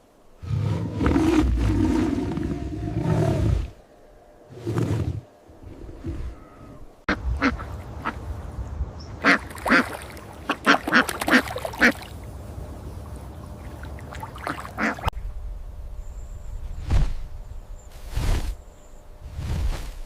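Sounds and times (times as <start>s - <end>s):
steady low rumble: 15.0s - 20.0s.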